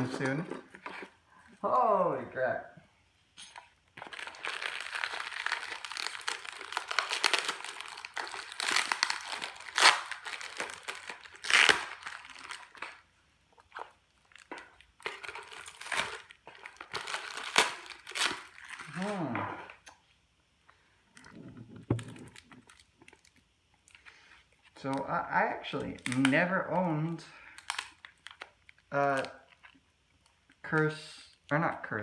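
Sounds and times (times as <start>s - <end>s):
plastic packaging crinkling: 3.9s - 20.0s, 21.1s - 25.1s, 25.7s - 31.5s.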